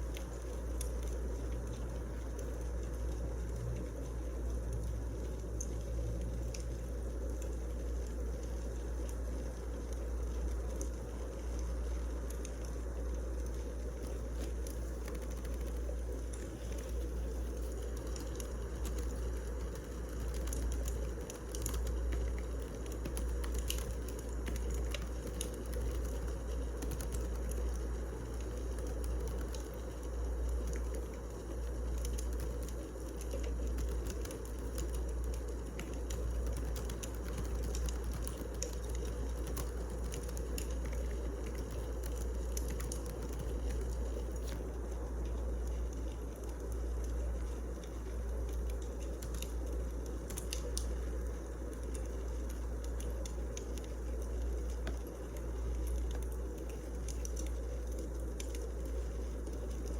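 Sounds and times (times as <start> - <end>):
logs crackling and popping: 0.0 - 59.9
low fire rumble: 0.0 - 59.9.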